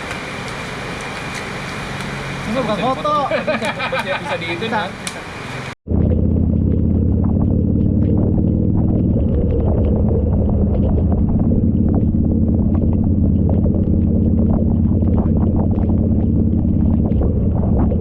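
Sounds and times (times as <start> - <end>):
motorcycle engine running: 5.9 - 18.0.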